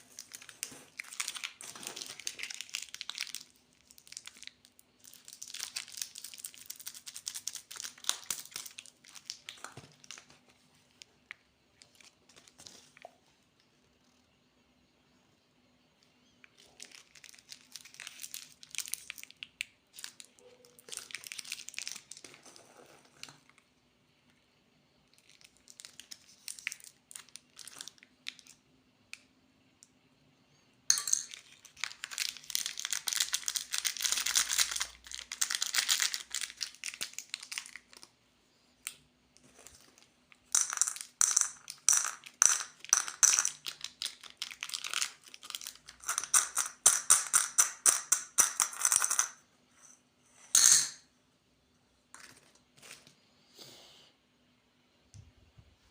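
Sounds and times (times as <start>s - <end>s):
plastic wrappers crinkling: 0.0s - 11.1s, 16.5s - 23.5s, 25.2s - 28.6s, 31.2s - 38.1s, 40.8s - 46.5s.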